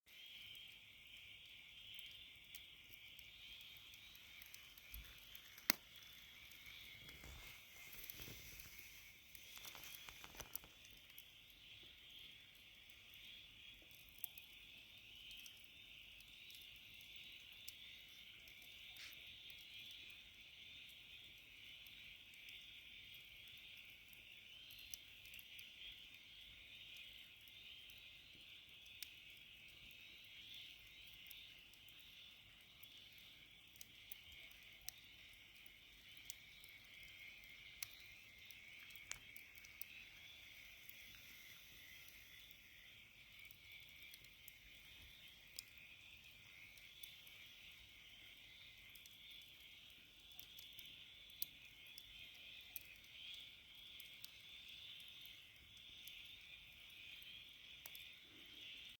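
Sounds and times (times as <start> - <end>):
wood fire crackling: 0.1 - 58.9
crickets chirping: 34.4 - 52.6.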